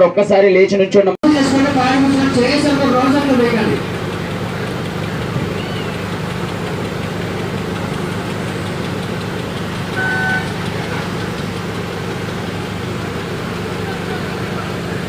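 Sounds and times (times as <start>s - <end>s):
boat engine running: 1.2s - 15.0s
short high-pitched beep: 10.0s - 10.5s.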